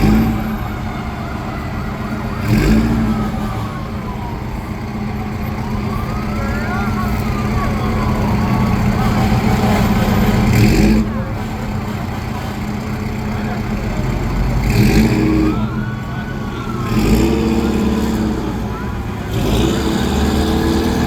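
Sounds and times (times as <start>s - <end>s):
siren wailing: 0.0s - 9.6s, 14.8s - 21.0s
heavy truck engine running: 0.0s - 21.0s.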